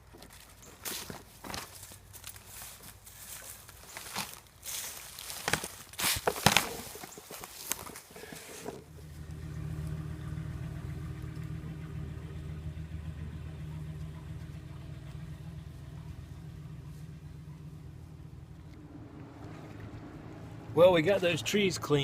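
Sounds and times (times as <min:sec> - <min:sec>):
branches knocking and cracking: 0:00.0 - 0:09.4
vehicle engine humming: 0:06.6 - 0:22.0.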